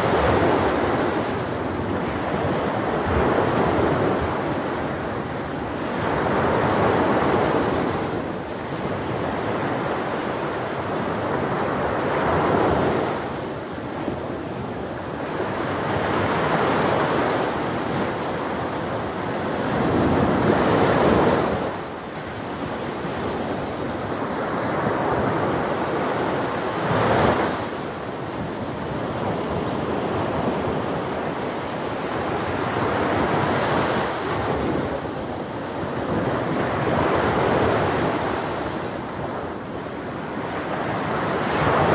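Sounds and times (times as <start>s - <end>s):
ocean surf breaking on beach: 0.0s - 41.9s.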